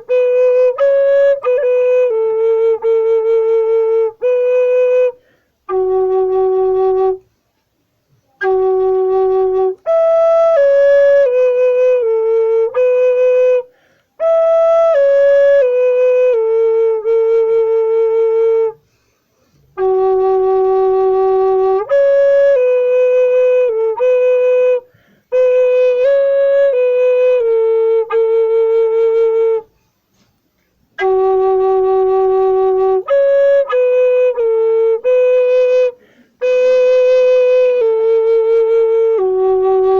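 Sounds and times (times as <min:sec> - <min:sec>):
solo flute melody: 0:00.0 - 0:39.9
flute player breaths: 0:05.2 - 0:05.7, 0:13.7 - 0:14.2, 0:18.8 - 0:19.8, 0:24.8 - 0:25.3, 0:29.7 - 0:30.8, 0:35.9 - 0:36.4.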